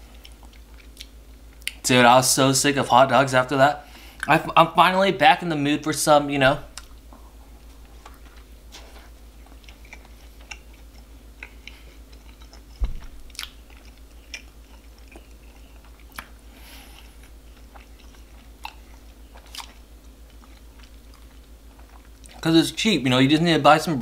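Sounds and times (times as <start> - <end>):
close chewing mouth noises: 0.0 - 1.8, 6.7 - 22.4
steady low hum: 0.0 - 24.0
low thump: 12.8 - 13.2.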